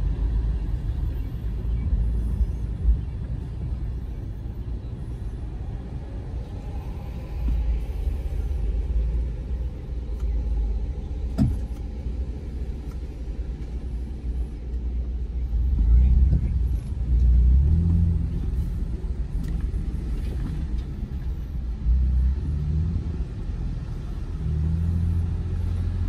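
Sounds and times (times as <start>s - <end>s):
vehicle engine and tyres rumbling: 0.0s - 26.0s
vehicle bump: 11.2s - 12.1s.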